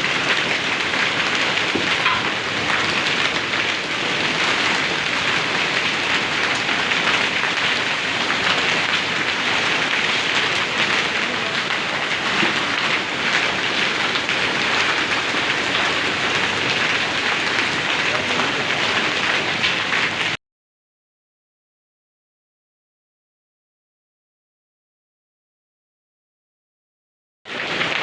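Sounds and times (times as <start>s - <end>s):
hail and rain pelting down: 0.0s - 20.4s, 27.5s - 28.0s.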